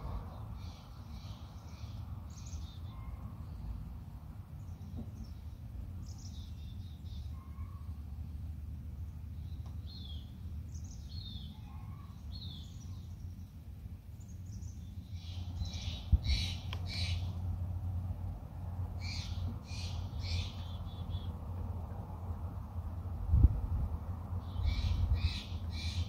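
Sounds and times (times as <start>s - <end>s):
loud harsh bird calls: 15.2s - 17.4s, 24.4s - 26.0s.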